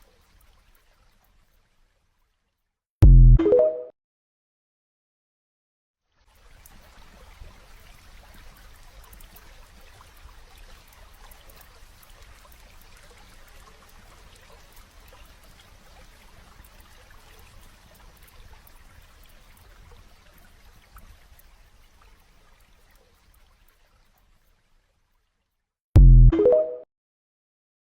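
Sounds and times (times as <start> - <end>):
steady rain: 0.0 - 1.8, 6.3 - 25.2
low rumble: 26.0 - 26.3.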